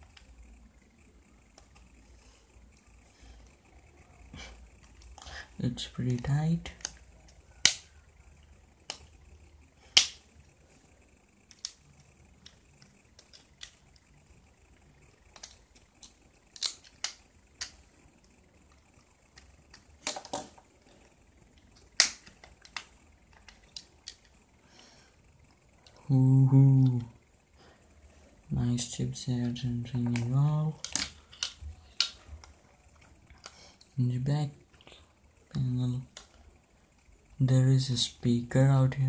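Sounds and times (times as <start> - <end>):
plastic clips snapping: 6.1 - 7.9, 9.9 - 10.2, 15.3 - 17.8, 19.3 - 20.6, 21.6 - 24.4, 30.1 - 32.6.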